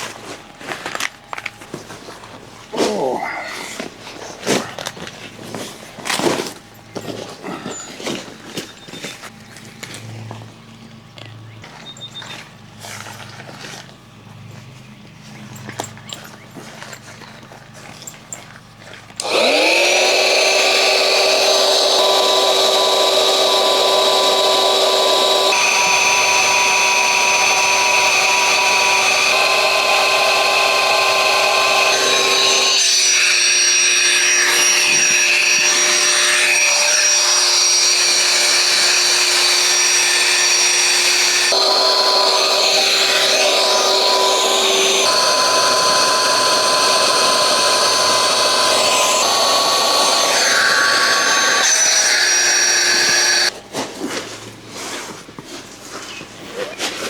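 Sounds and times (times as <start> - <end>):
electric blower motor whining: 19.2 - 53.5.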